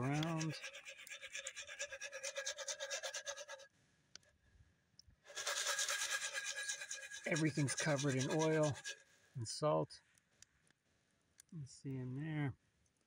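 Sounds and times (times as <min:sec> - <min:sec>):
popcorn kernels rattling in pot: 0:00.0 - 0:03.6, 0:05.3 - 0:09.0.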